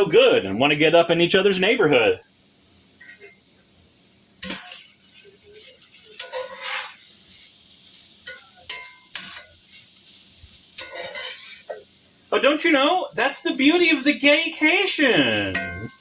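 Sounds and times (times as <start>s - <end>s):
meat sizzling in oil: 0.0s - 16.0s
utensil scraping pan: 4.4s - 12.6s, 13.2s - 16.0s.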